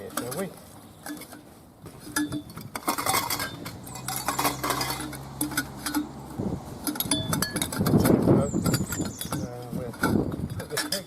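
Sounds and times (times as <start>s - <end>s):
hard parts clattering: 0.0s - 11.0s.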